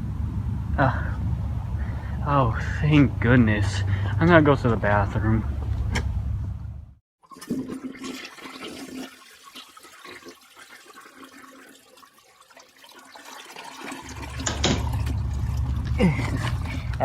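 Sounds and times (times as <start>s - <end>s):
loud low rumble: 0.0s - 7.0s
toilet flushing: 7.2s - 17.0s.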